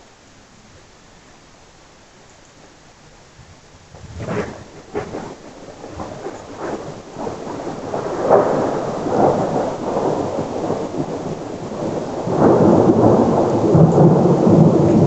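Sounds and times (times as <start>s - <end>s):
thunder crackling and rumbling: 3.3s - 15.0s.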